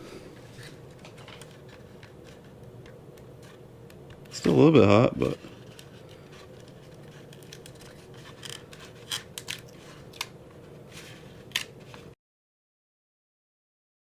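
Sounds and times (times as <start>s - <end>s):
faint steady hum: 0.0s - 12.2s
small sharp clicks and scratches: 5.5s - 10.3s.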